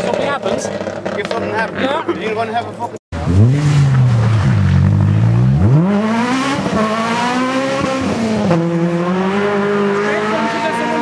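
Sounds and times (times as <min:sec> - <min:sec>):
rally car engine revving: 0:03.2 - 0:11.0.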